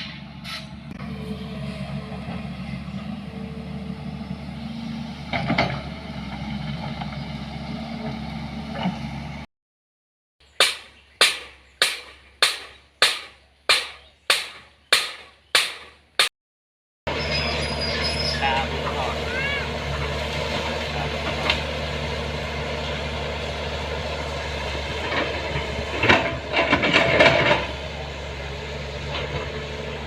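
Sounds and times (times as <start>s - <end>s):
vehicle running noise: 0.0s - 9.5s, 17.1s - 30.0s.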